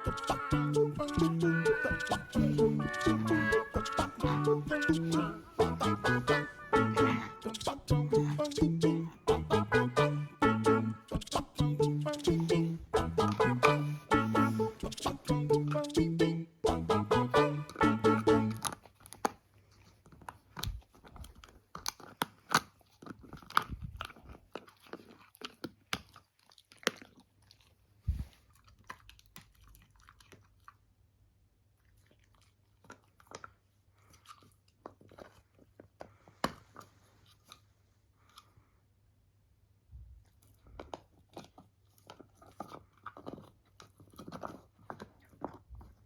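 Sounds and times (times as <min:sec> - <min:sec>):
pet chewing and crunching food: 0:18.4 - 0:38.7, 0:40.0 - 0:46.0.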